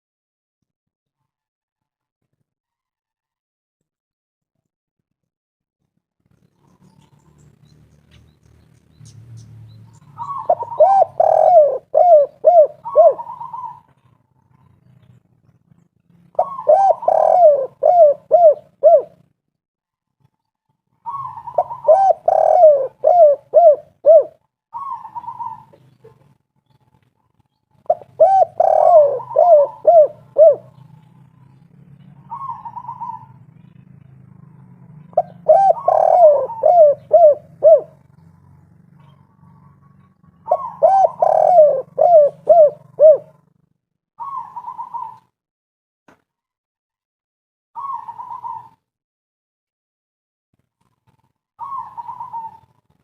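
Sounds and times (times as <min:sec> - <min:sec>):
dove cooing: 0:09.9 - 0:15.1, 0:16.3 - 0:19.3, 0:20.9 - 0:26.3, 0:27.8 - 0:43.6, 0:44.2 - 0:45.4, 0:47.8 - 0:48.8, 0:51.6 - 0:52.9.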